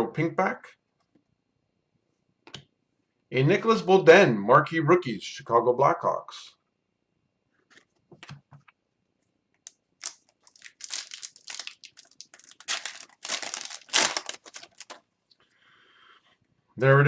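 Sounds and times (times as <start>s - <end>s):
foil wrapper crinkling and tearing: 10.0s - 15.0s.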